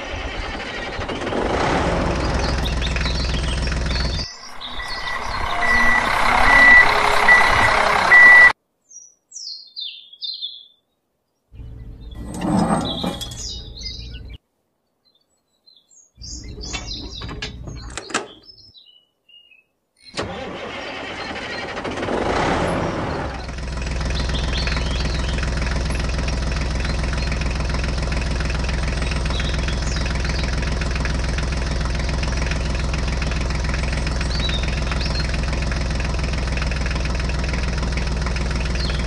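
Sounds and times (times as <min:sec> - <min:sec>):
vehicle engine running: 0:00.0 - 0:08.6, 0:11.6 - 0:14.4, 0:20.4 - 0:39.0
birds chirping: 0:00.9 - 0:21.9, 0:22.7 - 0:39.0
reversing beeper: 0:04.3 - 0:08.6.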